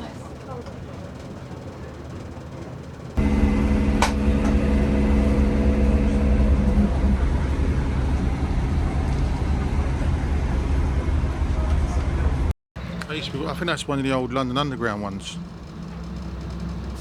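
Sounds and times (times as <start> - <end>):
train diesel engine rumble: 0.0 - 17.0
hum: 3.2 - 12.5.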